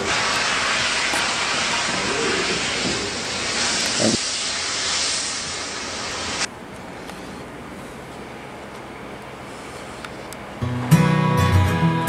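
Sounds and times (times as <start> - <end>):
steam hissing: 0.0 - 6.5.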